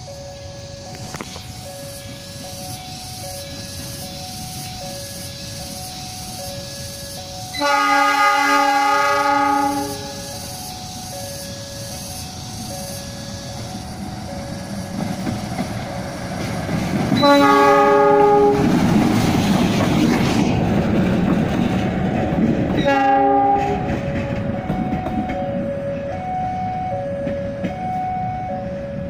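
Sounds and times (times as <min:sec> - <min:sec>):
locomotive engine and wheels: 0:00.0 - 0:29.0
train horn blasts: 0:07.5 - 0:10.4, 0:17.2 - 0:18.8, 0:22.8 - 0:27.0
faint two-tone signal: 0:24.6 - 0:28.8.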